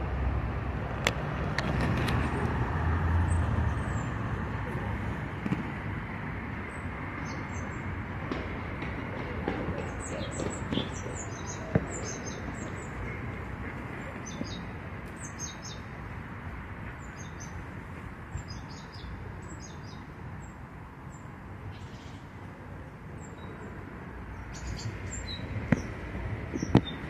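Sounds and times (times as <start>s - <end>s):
small birds chirping: 9.8s - 13.1s, 14.0s - 15.9s, 16.9s - 17.6s, 18.4s - 22.4s, 23.1s - 27.0s.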